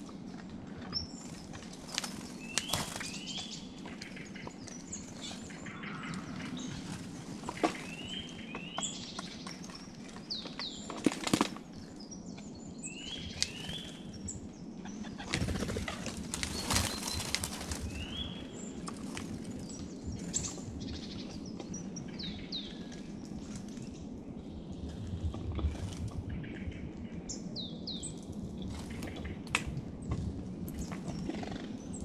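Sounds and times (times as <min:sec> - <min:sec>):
small songbirds chirping: 0:00.0 - 0:32.0
bird wingbeats: 0:01.3 - 0:04.1, 0:10.9 - 0:11.7, 0:15.0 - 0:21.0.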